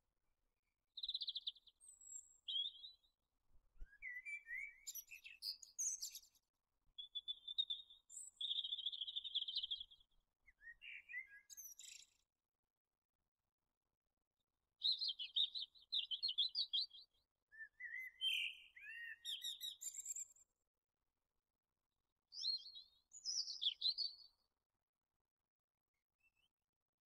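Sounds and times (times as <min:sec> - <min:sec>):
songbirds singing: 0:01.0 - 0:03.1, 0:03.9 - 0:06.4, 0:07.0 - 0:12.2, 0:14.8 - 0:20.2, 0:22.4 - 0:24.4.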